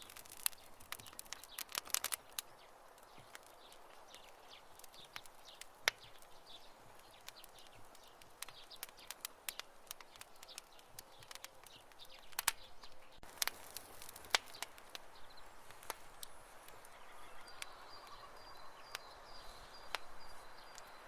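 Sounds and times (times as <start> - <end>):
campfire crackling and popping: 0.0 - 21.0
faint high chirping: 15.2 - 21.0.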